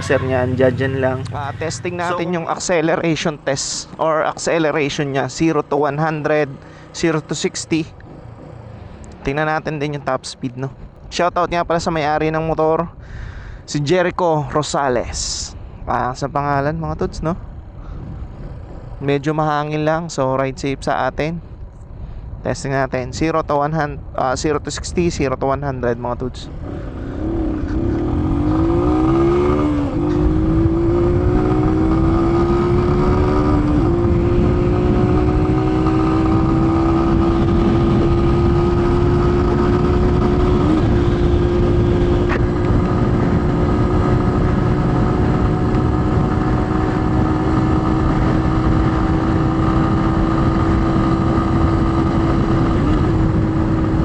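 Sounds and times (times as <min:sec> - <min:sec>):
motorcycle engine at full throttle: 0:00.0 - 0:11.0, 0:16.5 - 0:20.8, 0:26.3 - 0:54.0
wind buffeting on microphone: 0:15.0 - 0:19.8, 0:26.5 - 0:54.0.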